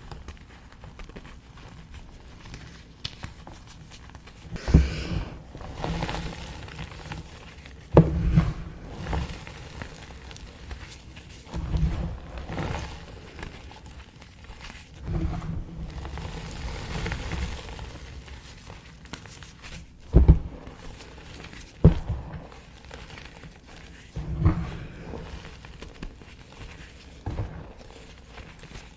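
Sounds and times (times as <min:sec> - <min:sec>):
sharp chalk cracks: 0:00.1 - 0:05.3.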